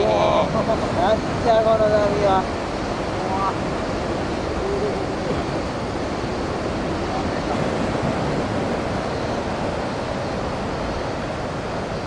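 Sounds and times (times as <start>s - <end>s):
surf breaking: 0.0s - 12.0s
wind on microphone: 0.0s - 12.0s.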